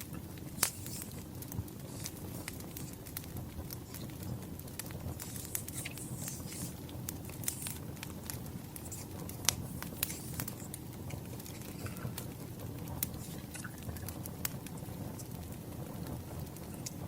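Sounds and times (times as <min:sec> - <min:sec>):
firewood crackling and popping: 0:00.0 - 0:17.0
low steady rumble: 0:00.0 - 0:17.0.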